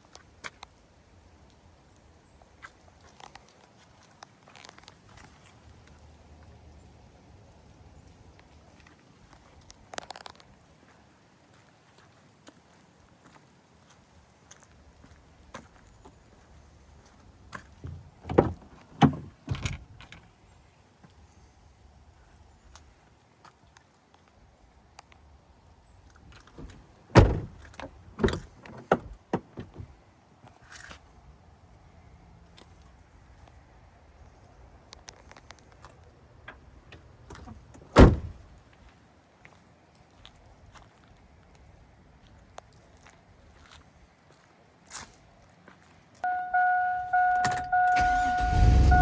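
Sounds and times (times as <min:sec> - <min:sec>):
vehicle door thud: 0:17.8 - 0:19.9, 0:26.6 - 0:29.9, 0:37.4 - 0:38.4, 0:46.3 - 0:49.0
heavy clunks: 0:26.6 - 0:29.9, 0:37.4 - 0:38.4.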